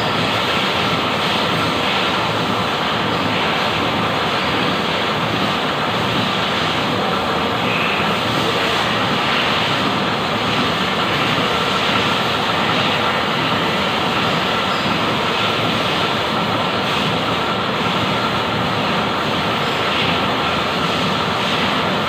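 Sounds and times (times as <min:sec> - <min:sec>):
lathe whirring: 0:00.0 - 0:22.0.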